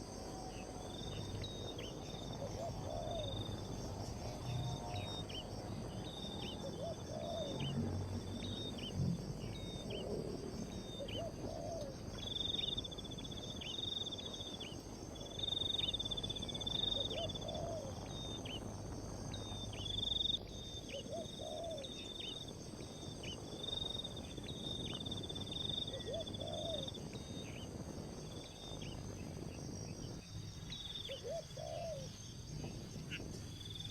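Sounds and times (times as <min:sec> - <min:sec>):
continuous high buzz: 0:00.0 - 0:33.9
insects pulsing trill: 0:00.0 - 0:33.9.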